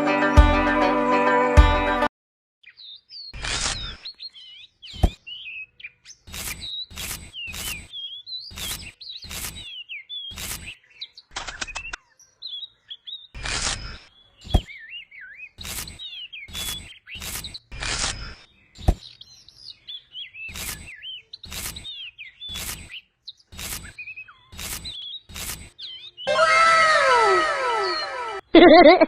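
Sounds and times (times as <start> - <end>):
small birds chirping: 2.6 - 28.5
short noisy strokes: 23.6 - 24.0, 24.6 - 25.7, 26.3 - 28.4.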